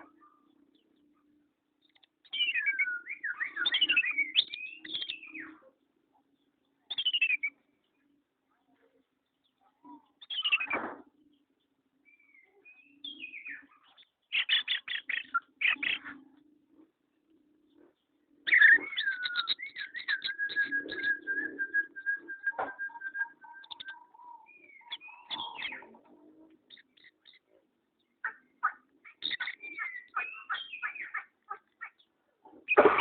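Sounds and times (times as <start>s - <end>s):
songbird chirps and whistles: 1.8s - 5.7s, 6.4s - 8.1s, 9.8s - 11.1s, 12.0s - 16.3s, 17.8s - 26.0s, 28.0s - 32.1s
fast bird trill: 28.2s - 32.0s.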